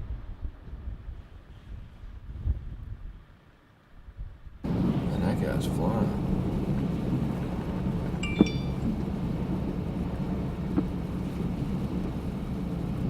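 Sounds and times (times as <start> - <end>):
car cabin low rumble: 4.6 - 13.0.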